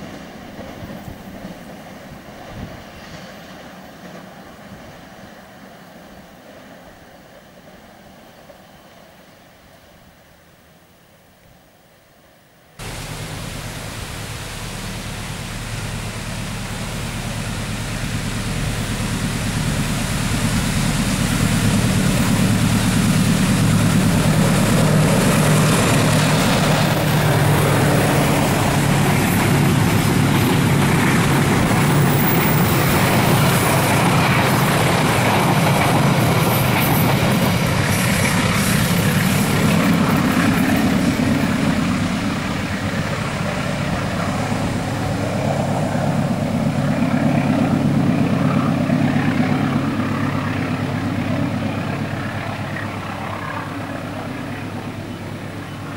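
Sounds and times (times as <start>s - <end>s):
rumble of train cars: 0.0s - 10.9s, 12.8s - 55.9s
locomotive engine drone: 12.8s - 55.9s.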